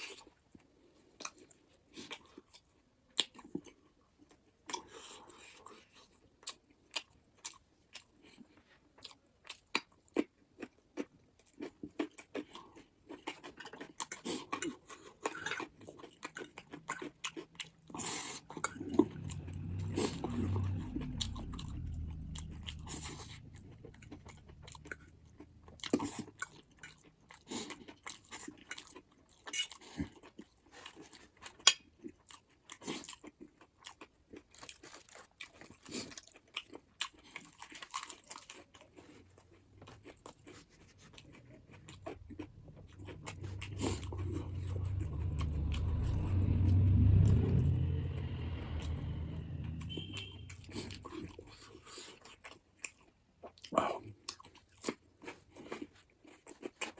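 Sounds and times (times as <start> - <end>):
wet chewing and biting: 9.0 - 19.8, 21.0 - 44.2
low swell: 18.6 - 25.9, 41.1 - 51.6.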